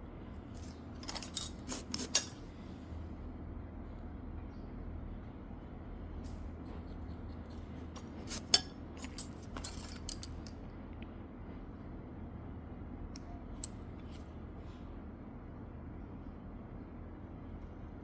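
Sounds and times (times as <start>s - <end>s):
steady low hum: 0.0s - 17.0s
metal manicure tools clicking: 1.0s - 2.4s, 8.2s - 10.5s.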